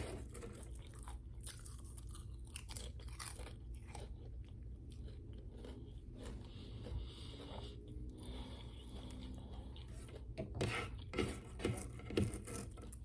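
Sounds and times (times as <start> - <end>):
chewing potato chips: 0.0 - 10.4.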